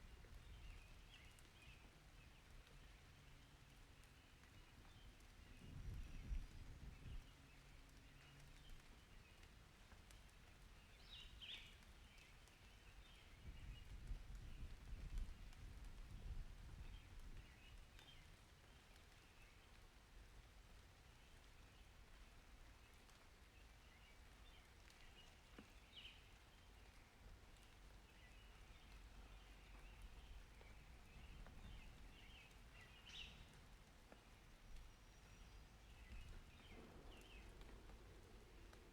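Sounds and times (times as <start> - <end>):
distant thunder rumbling: 36.1 - 38.9.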